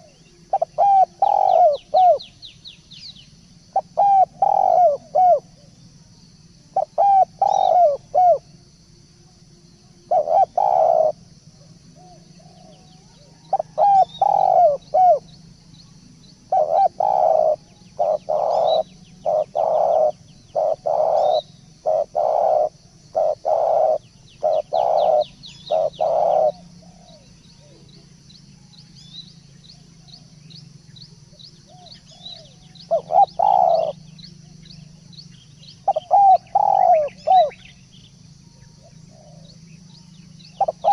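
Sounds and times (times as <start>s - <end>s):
dove cooing: 0.0s - 2.4s, 3.7s - 5.7s, 6.7s - 8.6s, 10.0s - 15.5s, 16.4s - 28.2s, 31.2s - 37.8s, 38.5s - 40.9s
small birds chirping: 0.0s - 8.6s, 9.3s - 40.9s.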